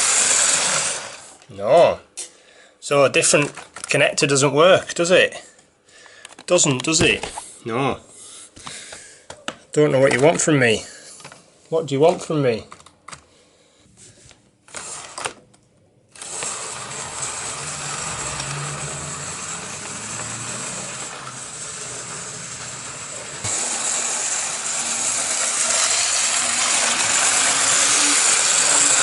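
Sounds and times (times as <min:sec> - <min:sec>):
model train motor whirring: 0:00.0 - 0:01.4, 0:14.7 - 0:15.3, 0:16.1 - 0:29.0.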